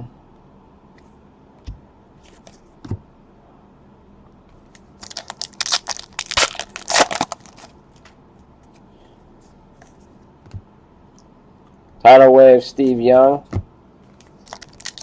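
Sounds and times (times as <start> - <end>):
plastic wrapper crinkling and tearing: 5.0 - 7.7, 14.2 - 15.0.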